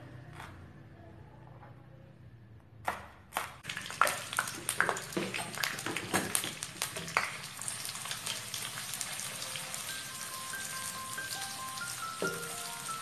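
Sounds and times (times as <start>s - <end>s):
fish frying with crackles: 3.6s - 13.0s.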